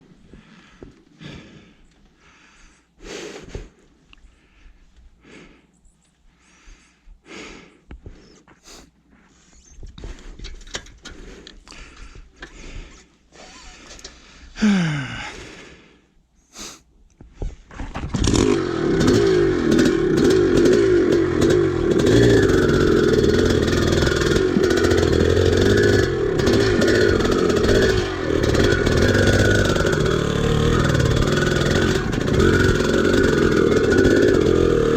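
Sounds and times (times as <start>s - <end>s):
dirt bike engine revving: 18.1s - 34.9s.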